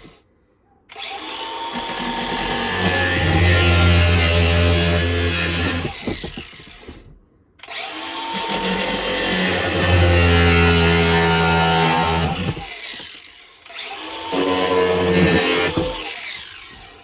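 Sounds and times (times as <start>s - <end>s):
angle grinder cutting metal pipe: 1.4s - 6.0s, 8.0s - 13.1s, 13.8s - 16.6s.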